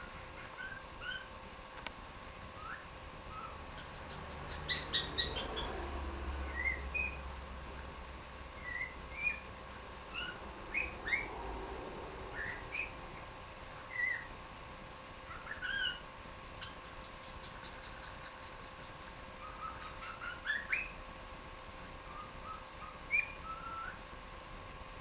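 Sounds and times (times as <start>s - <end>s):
cockatiel chirping and whistling: 0.6s - 1.3s, 2.6s - 5.7s, 6.5s - 7.2s, 8.6s - 9.5s, 10.1s - 11.3s, 12.3s - 12.9s, 13.9s - 14.3s, 15.3s - 16.0s, 19.4s - 21.0s, 22.1s - 24.0s.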